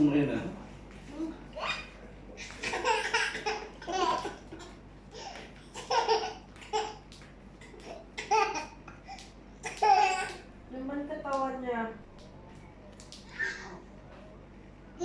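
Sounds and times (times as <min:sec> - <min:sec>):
toddler laughing: 0:01.6 - 0:07.0, 0:07.7 - 0:10.4.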